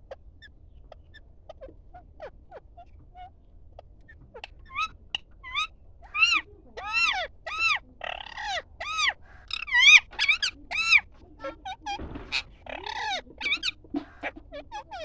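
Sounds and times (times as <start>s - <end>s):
bird calling: 4.1s - 15.0s.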